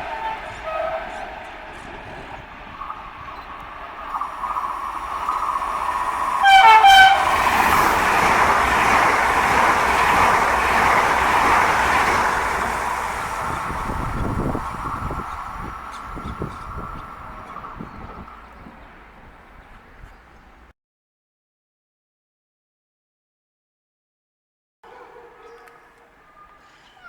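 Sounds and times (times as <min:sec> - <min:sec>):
train horn blast: 0:00.0 - 0:03.0, 0:03.6 - 0:11.4
train cars rushing past: 0:00.0 - 0:20.7.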